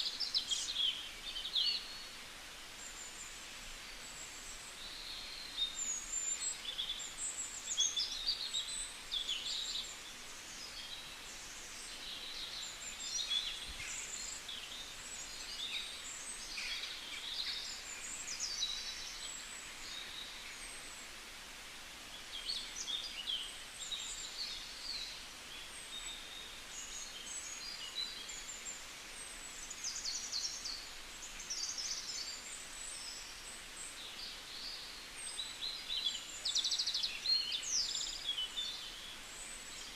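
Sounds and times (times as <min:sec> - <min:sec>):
soft steady background hiss: 0:00.0 - 0:39.9
songbirds chirping and singing: 0:22.2 - 0:39.9.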